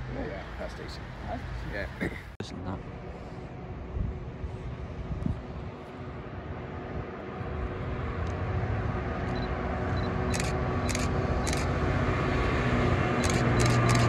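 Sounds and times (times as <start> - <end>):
train approaching with low hum: 0.0 - 14.0
sharp clicks: 13.2 - 14.0.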